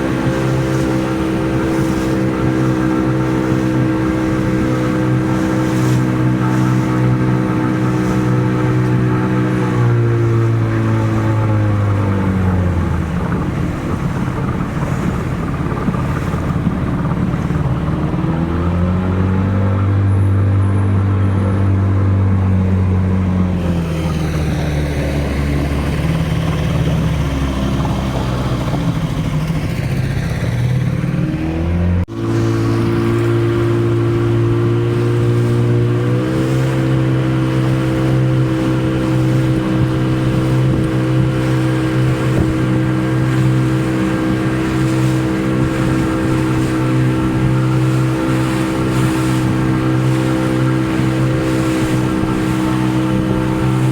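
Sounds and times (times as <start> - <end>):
boat engine running: 0.0 - 53.9.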